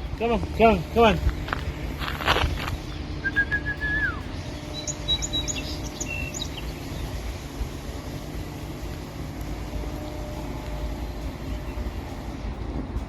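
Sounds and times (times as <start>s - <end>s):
steady low rumble: 0.0s - 13.0s
bird whistling: 2.9s - 7.1s
short high bird chirps: 3.2s - 7.1s.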